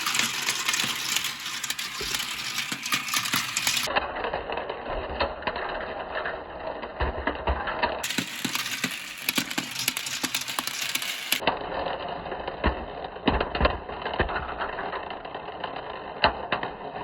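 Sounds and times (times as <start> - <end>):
marbles clattering down plastic track: 0.0 - 3.9, 8.0 - 11.4.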